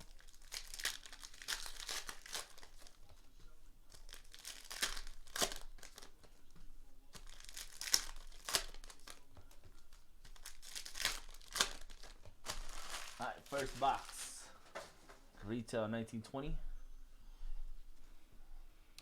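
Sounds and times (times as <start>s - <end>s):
plastic wrapping crinkling and tearing: 0.0s - 3.1s, 3.9s - 6.3s, 7.1s - 14.8s.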